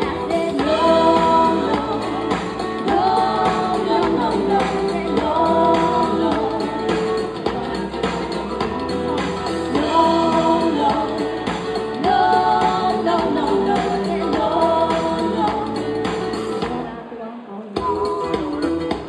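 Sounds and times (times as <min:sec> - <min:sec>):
steady drum beat: 0:00.0 - 0:16.8
live band music: 0:00.0 - 0:16.9
woman singing: 0:00.0 - 0:19.0.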